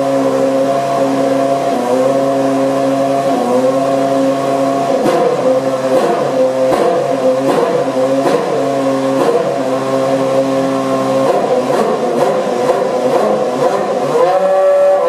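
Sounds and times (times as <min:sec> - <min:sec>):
racing car engine idling: 0:00.0 - 0:15.0
engine short sharp crackles: 0:05.0 - 0:09.6.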